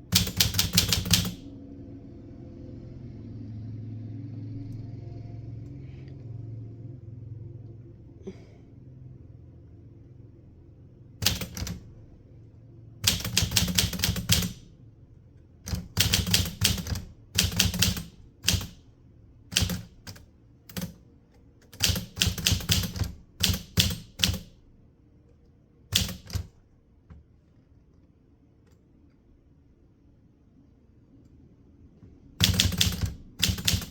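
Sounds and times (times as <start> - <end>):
manual typewriter key strikes: 0.0 - 1.5, 11.2 - 11.9, 13.0 - 14.7, 15.7 - 18.8, 19.5 - 21.0, 21.7 - 24.6, 25.9 - 26.5, 32.4 - 33.9.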